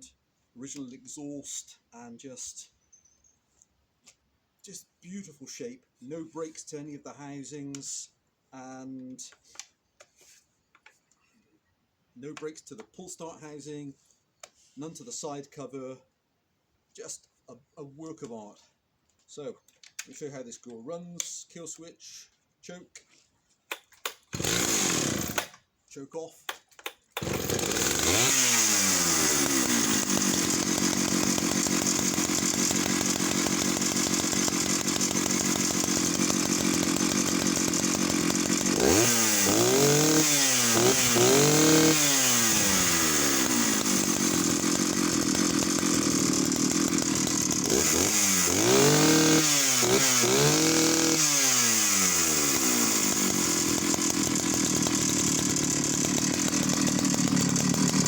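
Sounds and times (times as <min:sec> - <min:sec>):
chainsaw idling and revving: 0:23.7 - 0:25.6, 0:26.8 - 0:58.0.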